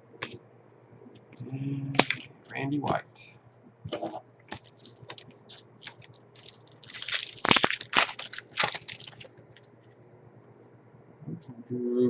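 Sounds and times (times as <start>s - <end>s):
trading cards rustling and scraping: 3.9s - 10.0s.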